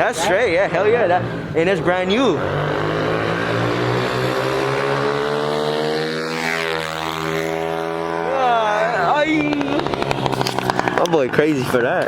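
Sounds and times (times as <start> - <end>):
mini dirt bike engine running: 2.6 - 11.5.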